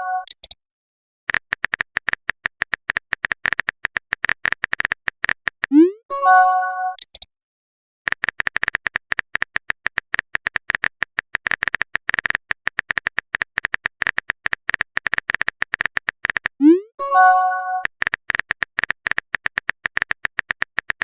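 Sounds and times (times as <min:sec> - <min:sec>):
phone keyboard typing clicks: 0:01.3 - 0:05.8, 0:07.0 - 0:07.3, 0:08.1 - 0:16.7, 0:17.8 - 0:21.0.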